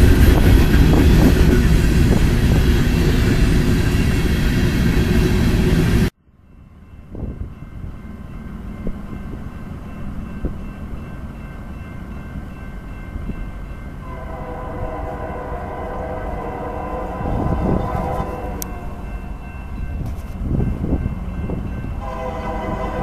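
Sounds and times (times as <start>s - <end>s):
approaching freight train rumble: 0.0s - 23.0s
freight train rumbling past: 0.0s - 23.0s
locomotive horn: 14.0s - 19.4s, 22.0s - 23.0s.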